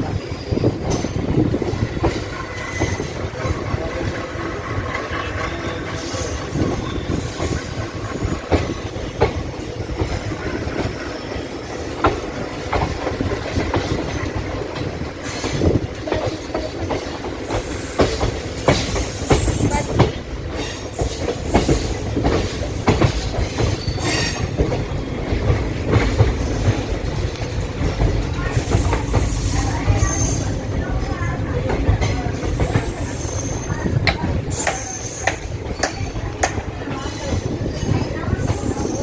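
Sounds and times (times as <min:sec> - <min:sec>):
train rumbling: 0:00.0 - 0:39.0
high wheel squeal: 0:00.3 - 0:03.8, 0:04.8 - 0:09.0, 0:23.4 - 0:24.6, 0:28.6 - 0:30.7, 0:32.3 - 0:33.9, 0:34.5 - 0:36.3
wheels clacking over rail joints: 0:00.8 - 0:38.7.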